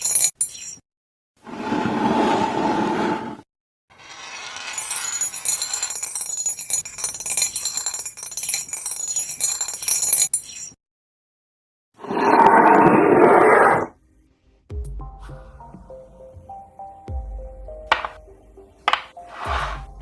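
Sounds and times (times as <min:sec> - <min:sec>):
clinking and jingling metal or glass: 0:00.0 - 0:00.8, 0:04.8 - 0:10.8.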